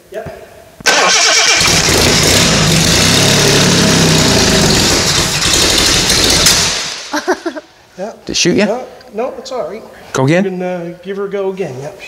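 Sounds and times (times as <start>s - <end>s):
engine cranking on starter motor: 0.9s - 6.9s.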